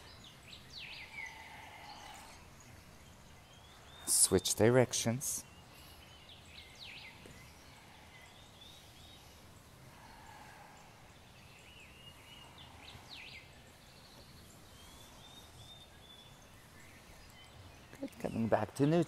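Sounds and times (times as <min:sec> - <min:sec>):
downward-sweeping bird calls: 0:00.0 - 0:04.6
faint birds chirping: 0:00.0 - 0:19.0
steady low hiss: 0:00.0 - 0:19.0.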